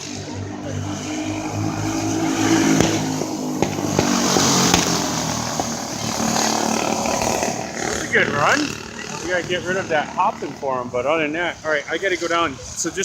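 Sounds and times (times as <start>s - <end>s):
go-kart engines racing: 0.0s - 13.0s.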